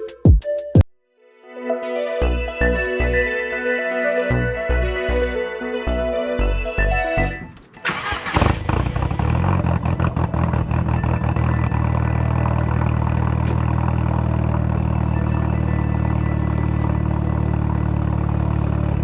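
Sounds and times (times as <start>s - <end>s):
car engine starting and idling: 7.2s - 19.0s.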